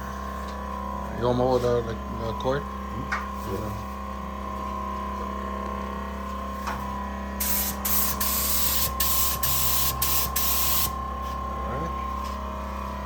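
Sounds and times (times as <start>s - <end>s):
steady hum: 0.0s - 13.0s
paint spray gun hissing: 7.4s - 11.0s.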